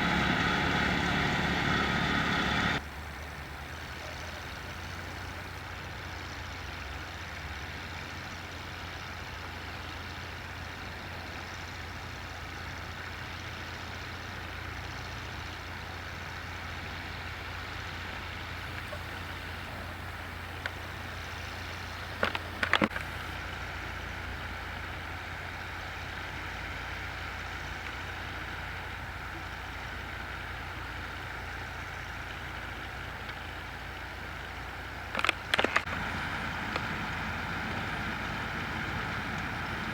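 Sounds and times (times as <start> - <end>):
harvesting machinery: 0.0 - 7.6, 15.7 - 39.9
tractor diesel engine under load: 0.0 - 39.9.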